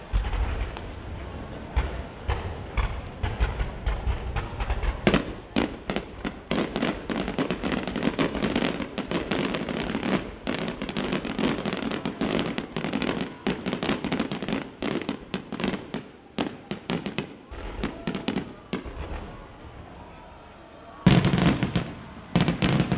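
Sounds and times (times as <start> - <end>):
fireworks bursting: 0.0 - 22.9.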